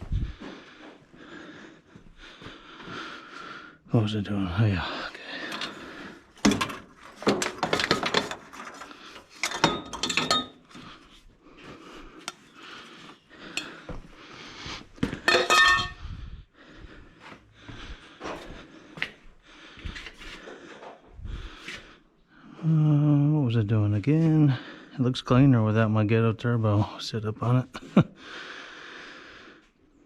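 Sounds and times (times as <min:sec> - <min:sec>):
metal tools clinking: 0:05.4 - 0:05.8, 0:06.4 - 0:10.8, 0:15.3 - 0:16.0
ringing metal clanks: 0:09.4 - 0:10.7, 0:15.3 - 0:16.0.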